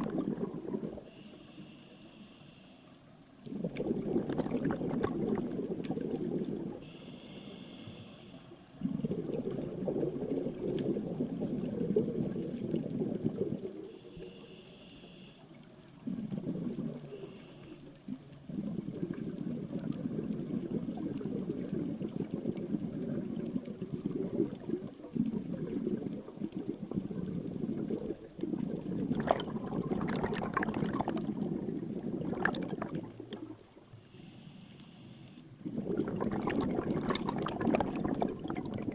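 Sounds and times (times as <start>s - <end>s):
exhaled air bubbling underwater: 0.0s - 2.2s, 3.0s - 34.6s, 35.4s - 38.9s
diver inhaling through regulator: 0.9s - 3.0s, 6.6s - 9.4s, 14.0s - 15.5s, 17.0s - 17.9s, 34.0s - 36.2s.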